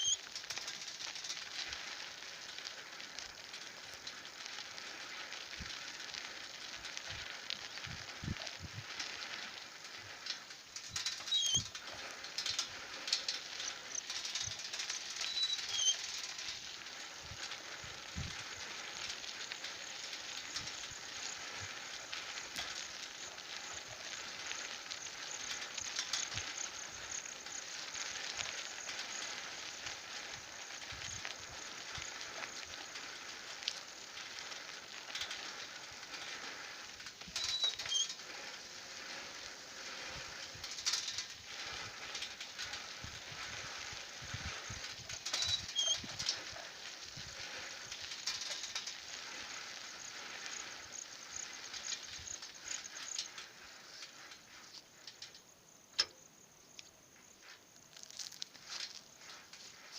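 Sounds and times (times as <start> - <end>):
bird chirps: 0.0 - 0.2, 11.2 - 11.7
steady high hiss: 0.0 - 59.9.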